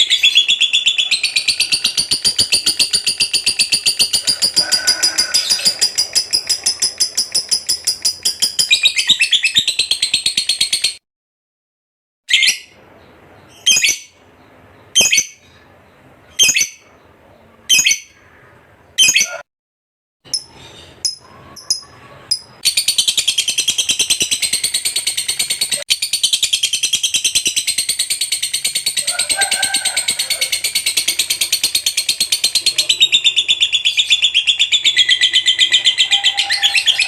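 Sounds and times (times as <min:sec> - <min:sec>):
bird sharp high calls: 0:00.0 - 0:10.9, 0:14.8 - 0:15.7, 0:17.7 - 0:19.4, 0:20.3 - 0:37.0
bird chirps: 0:00.0 - 0:11.0, 0:12.3 - 0:19.4, 0:20.3 - 0:29.2, 0:30.0 - 0:37.0
bird rapid chattering trill: 0:00.0 - 0:11.0, 0:15.0 - 0:15.4, 0:20.3 - 0:37.0.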